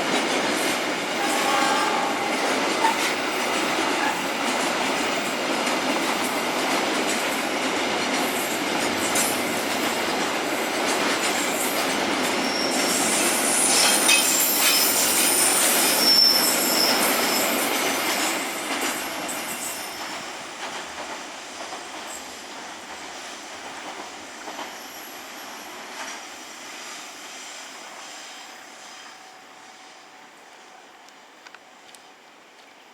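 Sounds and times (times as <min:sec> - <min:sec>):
train wheels rolling on rails: 0:00.0 - 0:32.9
high-pitched wheel squeals: 0:12.4 - 0:17.7.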